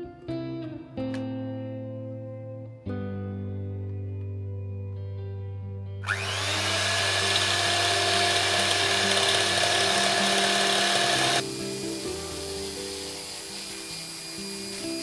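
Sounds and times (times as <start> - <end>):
electric mixer whisking: 6.0 - 15.0.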